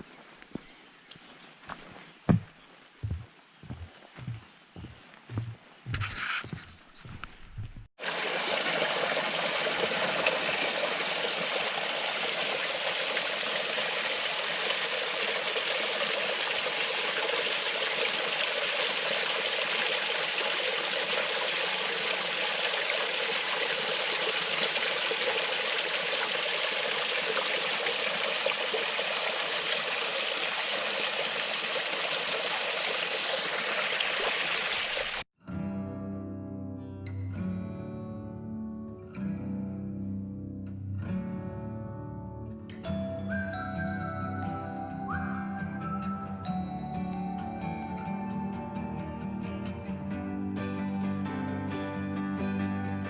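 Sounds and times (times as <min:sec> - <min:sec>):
stream splashing over rocks: 0:08.0 - 0:35.2.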